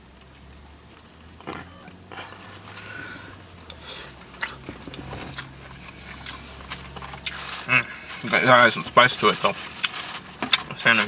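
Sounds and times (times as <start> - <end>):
person chewing food: 1.4 - 8.1.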